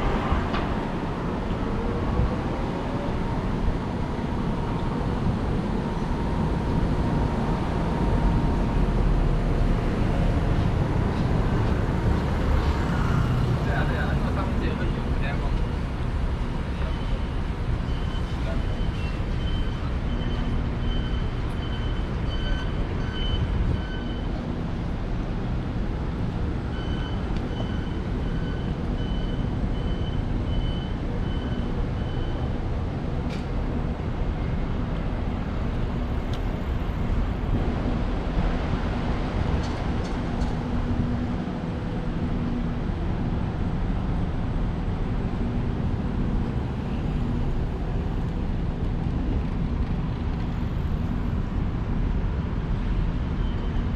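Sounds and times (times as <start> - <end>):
street traffic: 0.0 - 53.9.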